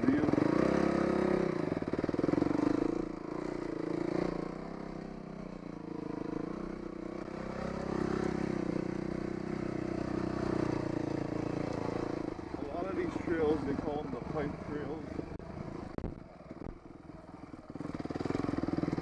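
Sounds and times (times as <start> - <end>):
dirt bike engine: 0.0 - 19.0.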